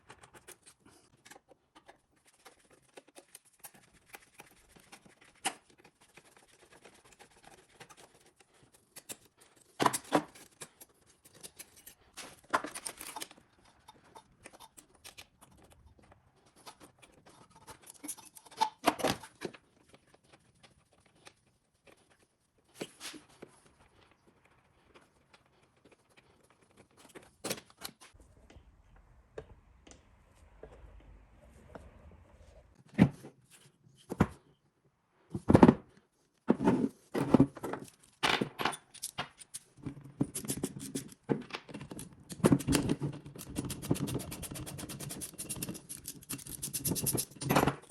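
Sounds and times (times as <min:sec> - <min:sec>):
clicks and rattles of small parts: 0:07.0 - 0:21.3, 0:37.2 - 0:47.9.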